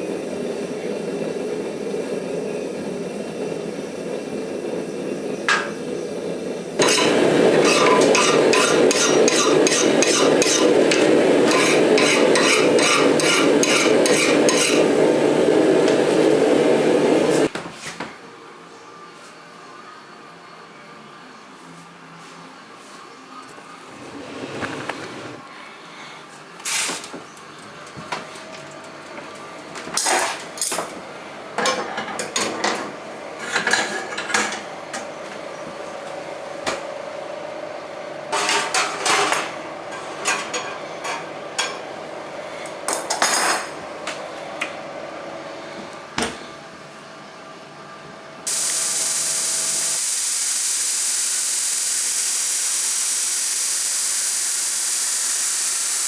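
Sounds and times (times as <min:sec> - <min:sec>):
steel tools clinking and scraping: 0:06.8 - 0:14.8
loud steady hiss: 0:48.4 - 0:56.0.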